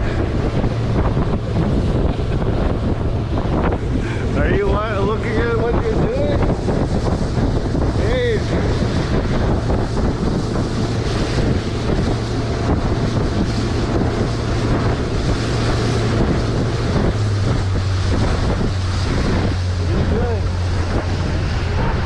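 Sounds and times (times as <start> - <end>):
motorboat engine running: 0.0 - 22.0
water rushing past hull: 0.0 - 22.0
wind buffeting microphone: 0.0 - 22.0.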